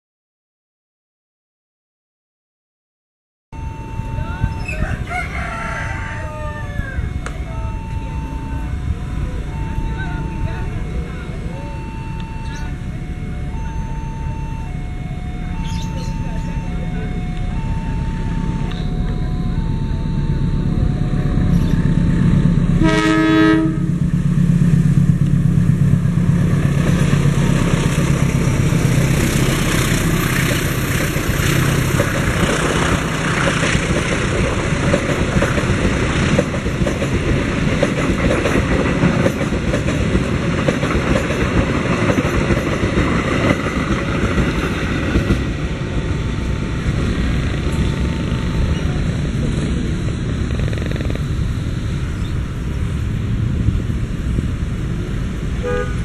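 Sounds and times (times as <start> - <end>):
crossing alarm two-tone beeps: 3.6 - 24.0
locomotive engine drone: 3.6 - 56.0
train horn blast: 22.6 - 24.2, 55.6 - 56.0
carriages clattering on rails: 24.0 - 55.9.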